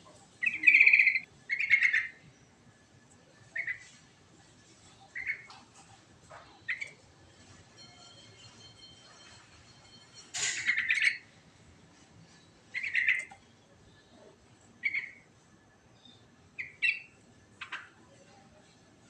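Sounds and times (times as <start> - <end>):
bird chirping song: 0.4 - 2.6, 3.4 - 4.0, 4.9 - 5.7, 6.3 - 7.1, 7.8 - 11.4, 12.3 - 15.3, 15.9 - 18.2.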